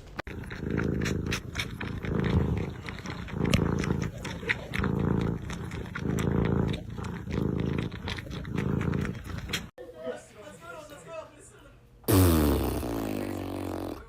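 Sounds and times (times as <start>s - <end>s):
cat purring: 0.1s - 9.7s.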